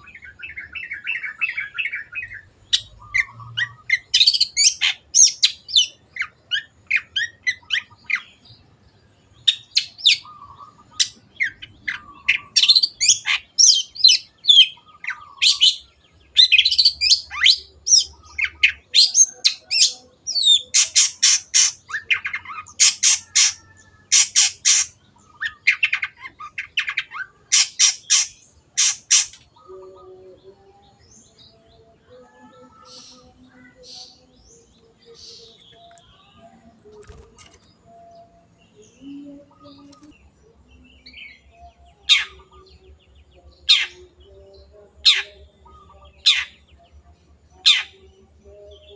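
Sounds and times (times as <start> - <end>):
bird singing chirps: 0.0 - 48.9
harsh bird squawking calls: 16.5 - 29.8.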